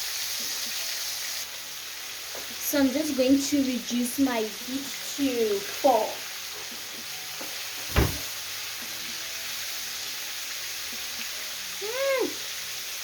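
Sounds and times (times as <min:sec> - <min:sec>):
chicken deep-frying in oil: 0:00.0 - 0:13.0
sharp knock: 0:07.9 - 0:08.3.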